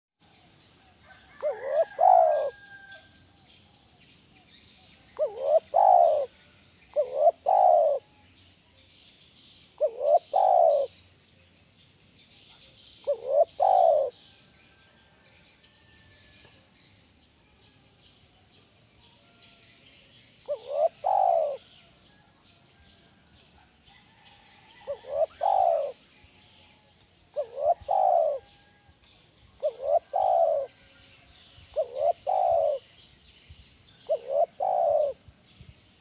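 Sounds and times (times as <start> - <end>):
dove cooing: 1.3 - 2.6, 5.2 - 8.1, 9.8 - 10.9, 13.0 - 14.2, 20.5 - 21.7, 24.8 - 26.0, 27.4 - 28.5, 29.6 - 30.8, 31.7 - 32.8, 34.0 - 35.2.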